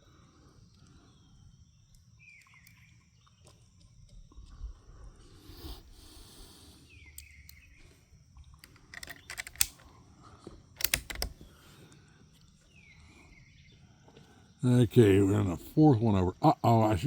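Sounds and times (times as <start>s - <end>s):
rifle mechanism clicking: 8.6s - 10.0s, 10.8s - 11.6s.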